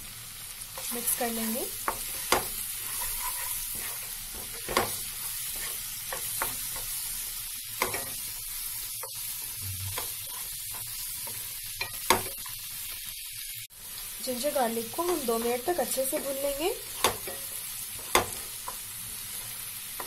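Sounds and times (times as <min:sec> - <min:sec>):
onions sizzling in hot oil: 0:00.0 - 0:20.0
spatula scraping and knocking a pan: 0:01.8 - 0:07.0, 0:09.9 - 0:12.5, 0:17.0 - 0:18.8.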